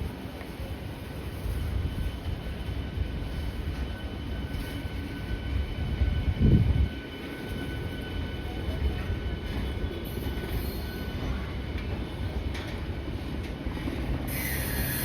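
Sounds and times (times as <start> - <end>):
electric train rumbling on track: 0.0 - 15.0.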